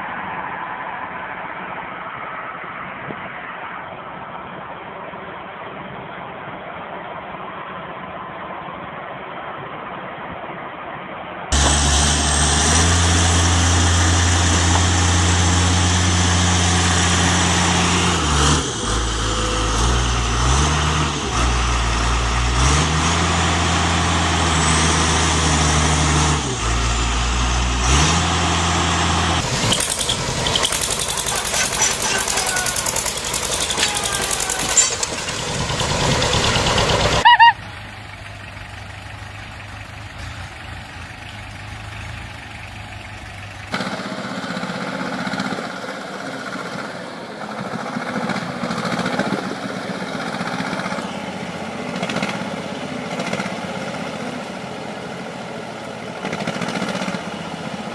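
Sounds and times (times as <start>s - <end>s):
heavy vehicle engine under load: 11.5s - 57.9s
noisy mechanical clatter: 29.4s - 37.2s.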